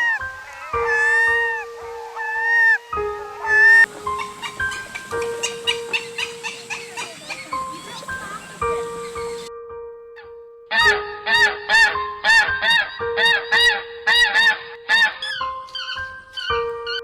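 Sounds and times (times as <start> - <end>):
background music with held notes: 0.0 - 17.0
goose honking: 3.5 - 9.5.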